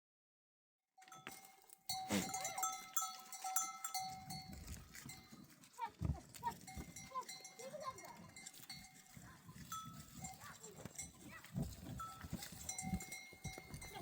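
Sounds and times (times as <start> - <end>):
livestock bell ringing: 1.0 - 14.0
goats and sheep bleating: 1.9 - 14.0.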